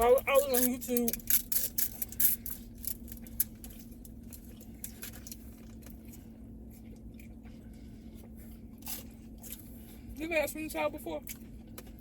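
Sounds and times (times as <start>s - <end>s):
chewing clicks and crackles: 0.0s - 7.6s
low electrical hum: 0.0s - 12.0s.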